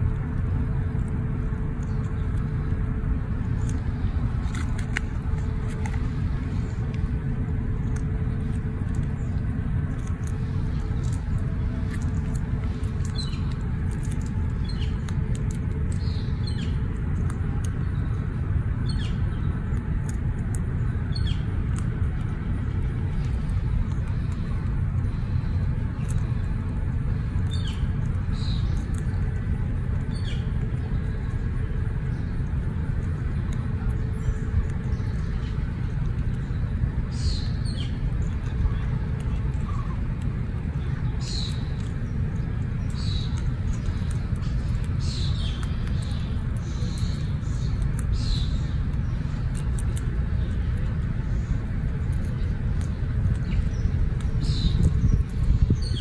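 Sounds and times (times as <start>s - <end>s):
low background rumble: 0.0s - 56.0s
small bird chirping: 8.9s - 18.2s, 18.8s - 20.2s, 20.9s - 21.6s, 27.1s - 31.4s, 33.9s - 56.0s.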